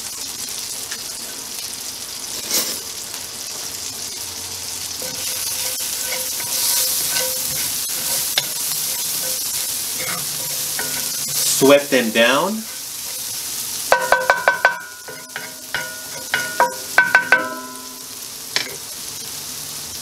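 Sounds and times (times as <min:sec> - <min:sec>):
shallots sizzling in butter: 0:00.0 - 0:20.0
wooden spatula stirring: 0:05.0 - 0:11.8.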